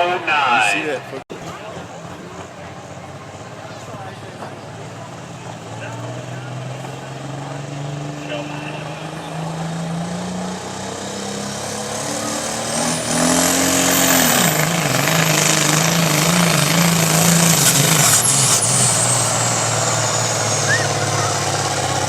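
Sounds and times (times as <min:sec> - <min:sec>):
diesel engine running hard: 0:00.0 - 0:22.0
turbo whistle: 0:20.5 - 0:21.7.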